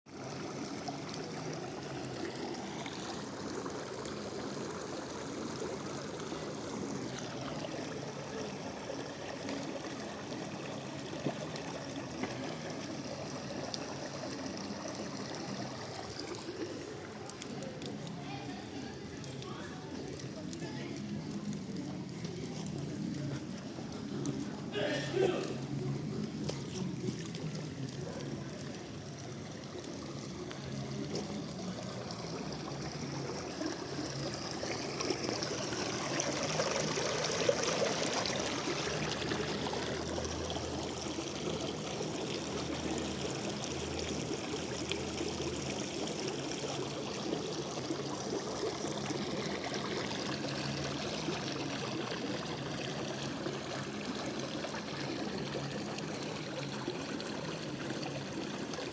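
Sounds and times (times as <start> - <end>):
rainwater gushing from storm drain: 0.1 - 58.9.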